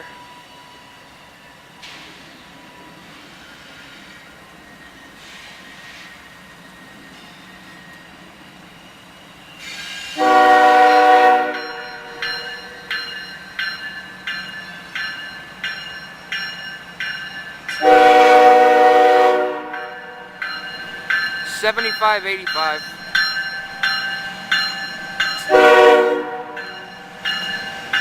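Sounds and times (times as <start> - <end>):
passing train rumble: 0.0 - 28.0
locomotive air horn blasts: 10.2 - 12.1, 17.8 - 19.9, 25.4 - 26.6
bell ringing: 19.8 - 25.6, 26.6 - 28.0.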